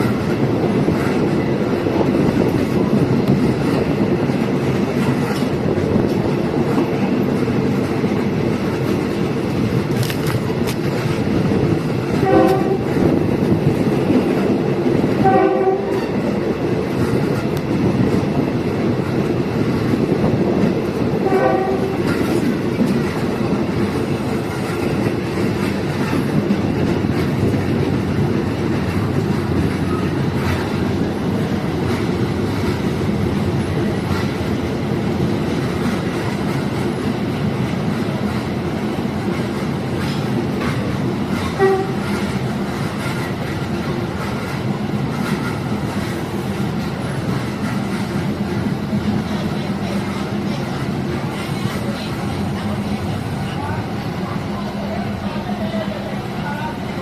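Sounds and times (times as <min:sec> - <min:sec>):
train rumbling on rails: 0:00.0 - 0:57.0
train horn blasts: 0:12.2 - 0:13.0, 0:15.2 - 0:16.2, 0:21.2 - 0:22.2, 0:41.4 - 0:42.2.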